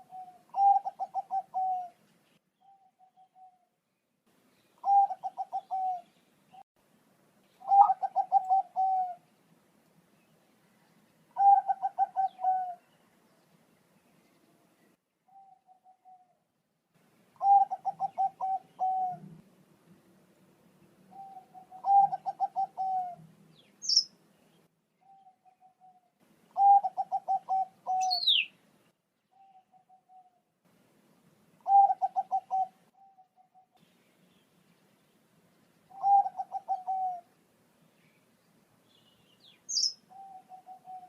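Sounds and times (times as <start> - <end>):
dove cooing song: 0.0 - 2.0, 2.6 - 3.7, 4.8 - 6.6, 7.6 - 9.3, 11.3 - 13.0, 15.3 - 16.4, 17.4 - 19.4, 21.1 - 24.1, 25.0 - 28.5, 29.3 - 30.4, 31.6 - 33.8, 35.9 - 37.3, 39.7 - 41.0.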